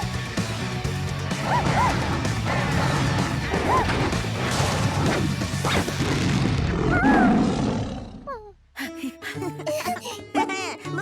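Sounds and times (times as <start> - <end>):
busy background music: 0.0 - 6.0, 8.8 - 11.0.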